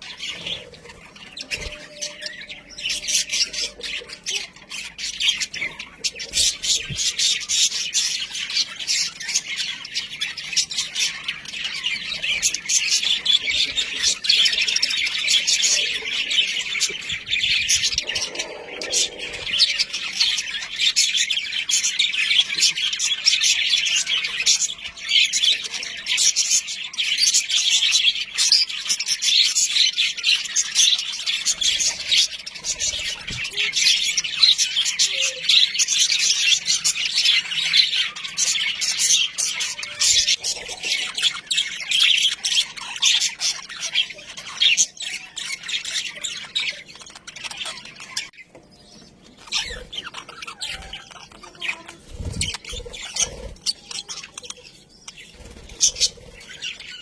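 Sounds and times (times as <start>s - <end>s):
budgerigars chattering and chirping: 0.0s - 57.0s
harsh bird squawks: 17.0s - 20.5s.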